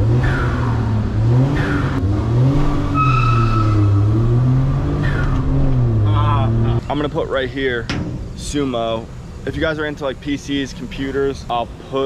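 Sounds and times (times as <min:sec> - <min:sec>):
car engine revving: 0:00.0 - 0:07.2
high squeal: 0:02.7 - 0:05.7.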